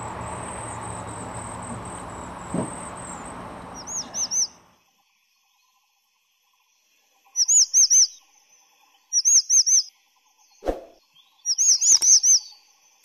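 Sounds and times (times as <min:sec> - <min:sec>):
small bird whistling: 0:00.0 - 0:04.7, 0:07.4 - 0:08.2.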